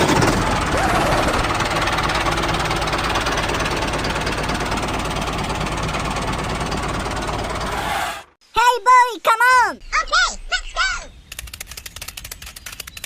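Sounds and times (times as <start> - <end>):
engine knocking: 0.0 - 7.8.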